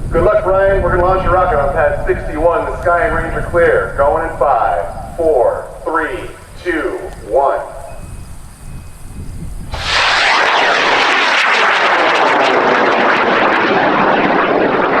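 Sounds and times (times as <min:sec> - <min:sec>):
rocket motor roaring: 0:09.7 - 0:15.0.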